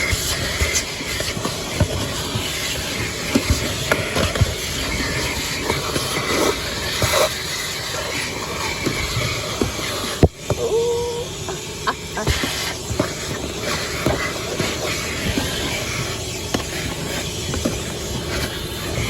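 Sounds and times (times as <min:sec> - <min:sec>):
vacuum suction hiss: 0:00.0 - 0:19.0.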